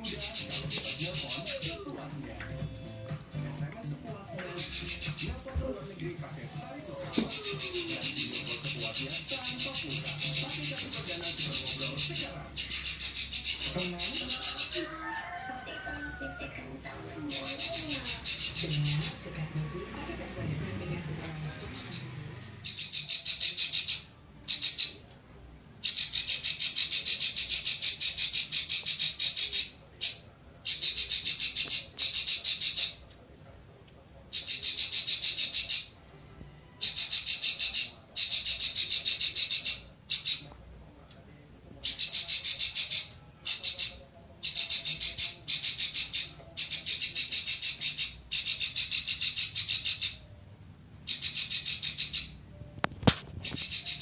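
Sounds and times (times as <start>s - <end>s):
songbird clicking song: 0.0s - 2.6s, 4.4s - 6.1s, 7.1s - 14.8s, 17.3s - 19.2s, 25.8s - 33.2s, 36.8s - 50.2s, 51.1s - 54.0s.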